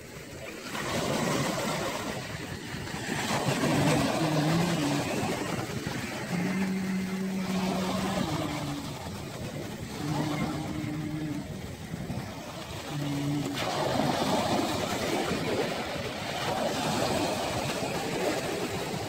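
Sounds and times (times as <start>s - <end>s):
broad rushing noise: 0.0s - 19.0s
engine humming: 3.6s - 14.1s.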